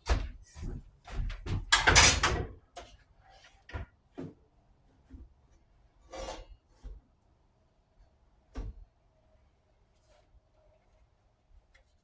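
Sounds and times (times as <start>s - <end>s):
scraping on a miter saw: 6.0s - 6.6s.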